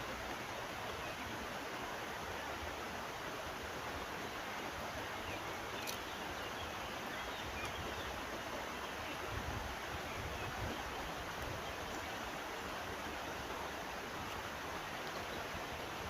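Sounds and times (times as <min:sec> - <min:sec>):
river flowing: 0:00.0 - 0:16.0
faint click: 0:05.8 - 0:06.1.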